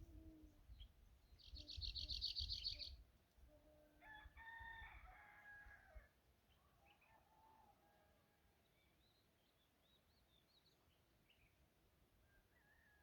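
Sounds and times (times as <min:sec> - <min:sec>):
distant rooster crowing: 0:04.0 - 0:06.1, 0:06.9 - 0:08.4, 0:12.3 - 0:13.0.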